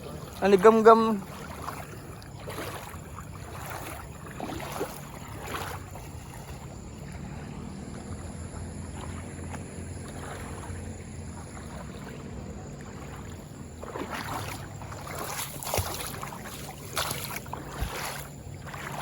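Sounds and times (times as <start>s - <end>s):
loud splashes: 0.0s - 19.0s
river water splashing: 0.0s - 19.0s
steady low hum: 1.2s - 19.0s.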